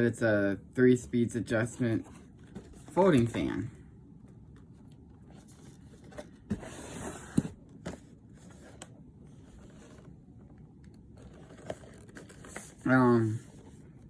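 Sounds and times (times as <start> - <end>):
cardboard box scraping: 5.4 - 7.6, 11.2 - 13.6.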